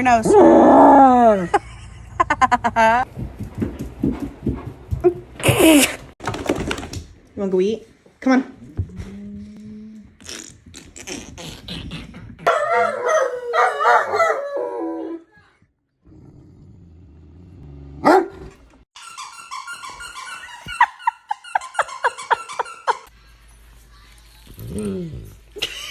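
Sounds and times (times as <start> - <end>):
clicks and clatter: 6.2 - 7.3.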